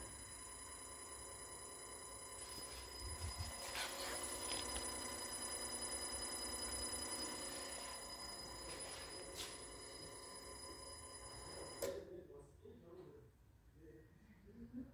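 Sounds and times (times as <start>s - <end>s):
electric motor whine: 0.0s - 11.8s.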